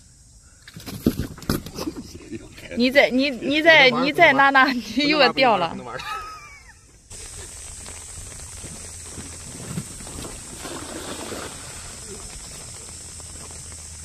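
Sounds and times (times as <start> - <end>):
rain falling: 7.1 - 14.0
rustling: 7.1 - 14.0.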